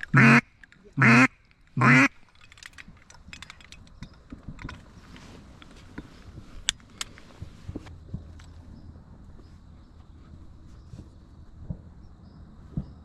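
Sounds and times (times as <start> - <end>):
raspy duck call quacks: 0.1 - 2.1.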